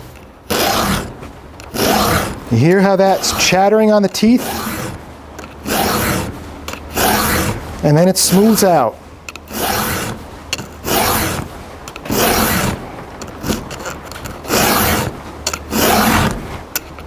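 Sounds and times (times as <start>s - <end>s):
file rasping on chainsaw chain: 0.5s - 16.9s.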